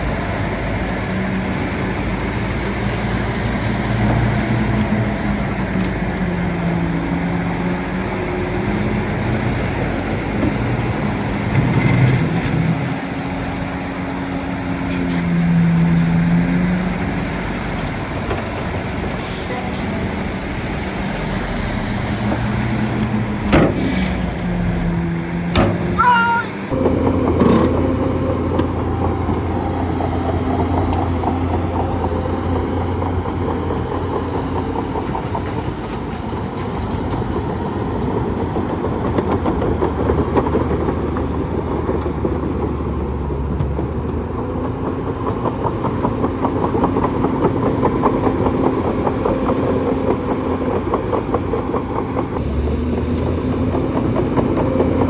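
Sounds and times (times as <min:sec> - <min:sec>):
bulldozer engine running: 0:00.0 - 0:55.0
sharp knocks: 0:23.1 - 0:28.0
high squeak: 0:25.8 - 0:29.2.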